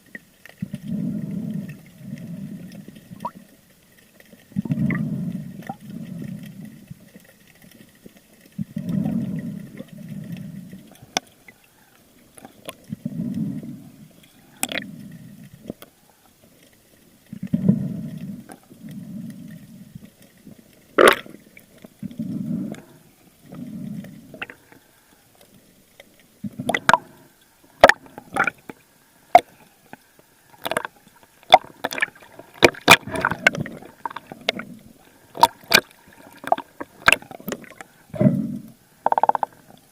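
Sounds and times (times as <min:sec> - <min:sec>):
sharp clicks in water: 0:00.0 - 0:22.9, 0:23.5 - 0:39.9
water splashing: 0:20.1 - 0:22.8, 0:26.1 - 0:29.6, 0:30.4 - 0:38.4
breathing through a snorkel: 0:22.0 - 0:25.3, 0:33.0 - 0:39.0.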